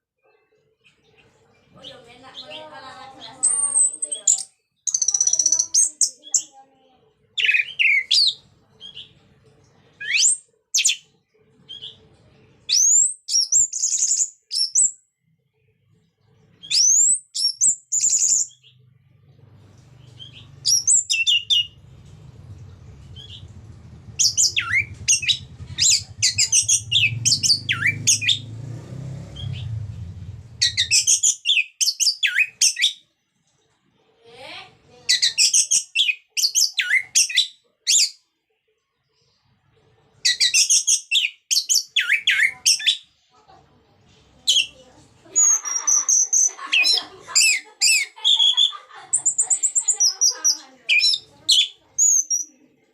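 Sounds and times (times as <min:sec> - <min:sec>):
thrush singing whistled notes: 0:24.2 - 0:28.6, 0:30.6 - 0:33.0.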